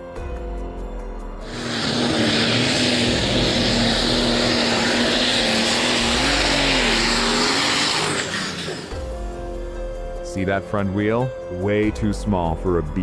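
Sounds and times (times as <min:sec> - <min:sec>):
tractor engine running: 0:01.3 - 0:09.7
loud hissing rush: 0:01.4 - 0:09.0.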